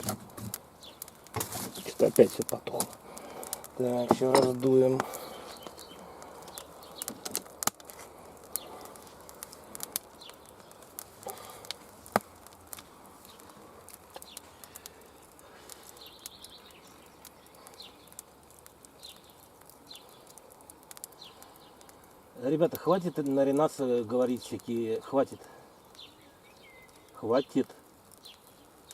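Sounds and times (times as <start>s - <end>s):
campfire crackling: 0.0s - 28.9s
bird chirps: 5.2s - 7.2s, 15.9s - 18.2s, 19.0s - 20.4s, 25.8s - 27.2s.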